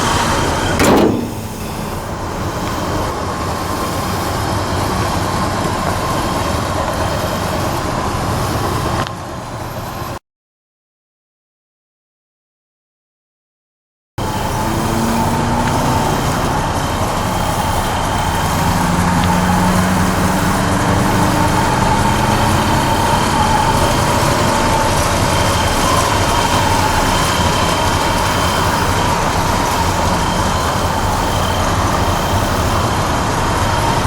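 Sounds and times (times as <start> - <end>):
pickup engine and road noise: 14.2 - 34.0.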